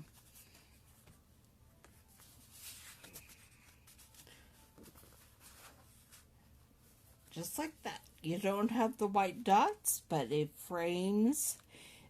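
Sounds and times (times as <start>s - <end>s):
paper cards rustling and tapping: 1.8s - 6.2s.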